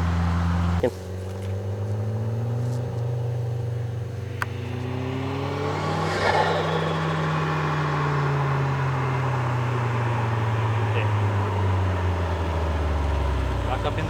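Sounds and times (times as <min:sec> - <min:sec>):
car engine accelerating: 0:00.0 - 0:14.0
turbo flutter: 0:02.6 - 0:11.2.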